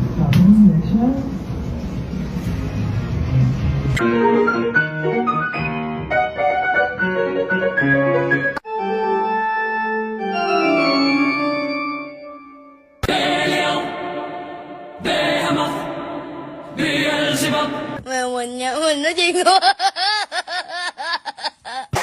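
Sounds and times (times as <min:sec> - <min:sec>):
organ-like keyboard music: 0:02.7 - 0:18.0.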